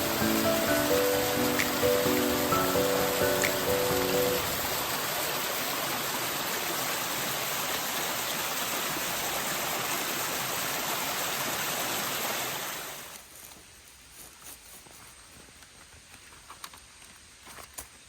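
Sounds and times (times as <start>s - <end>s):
stream water rushing: 0.0s - 13.2s.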